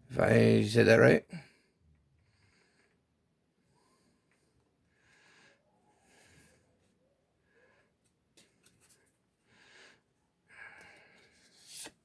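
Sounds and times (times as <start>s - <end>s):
breathing close to microphone: 3.6s - 6.7s, 9.5s - 11.5s
cards sliding: 11.1s - 12.0s.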